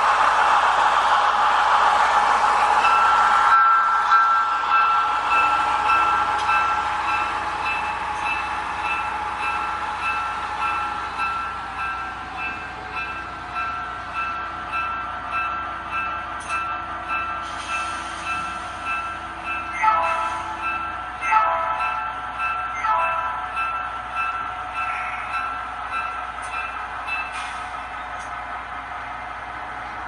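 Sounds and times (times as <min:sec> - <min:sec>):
locomotive bell ringing: 0:02.8 - 0:28.0.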